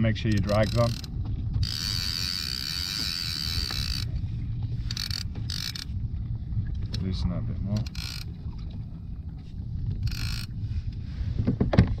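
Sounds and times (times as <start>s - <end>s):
low rumble: 0.0s - 12.0s
fishing reel drag buzzing: 0.4s - 4.2s, 4.8s - 5.9s, 7.8s - 8.3s, 10.0s - 10.5s.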